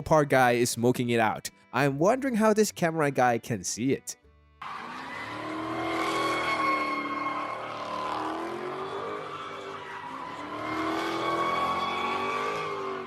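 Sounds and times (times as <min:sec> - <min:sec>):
car engine revving: 0:04.6 - 0:13.0
tyres squealing: 0:04.6 - 0:13.0.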